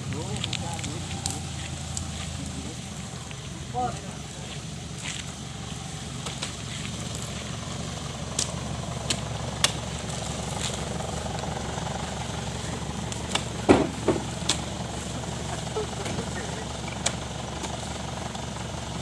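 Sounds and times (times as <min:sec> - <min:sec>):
diesel truck engine idling: 0:00.0 - 0:19.0
loud thud: 0:13.6 - 0:14.5.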